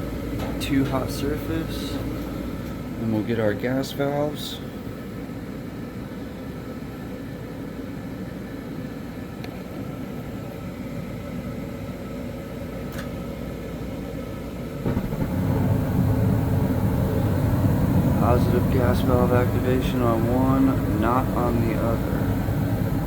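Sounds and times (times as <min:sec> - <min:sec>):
gas burners lighting rush: 0:00.0 - 0:04.8, 0:14.8 - 0:23.0
furnace fan motors running: 0:00.0 - 0:23.0.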